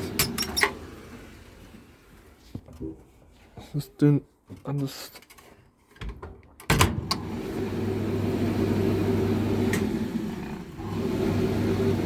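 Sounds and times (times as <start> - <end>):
tumble dryer motor hum: 6.8 - 12.0.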